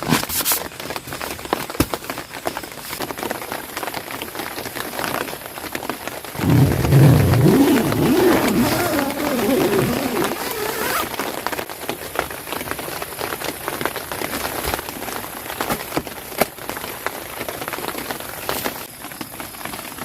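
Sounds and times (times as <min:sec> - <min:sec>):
rain tapping on a tent: 0:00.0 - 0:20.0.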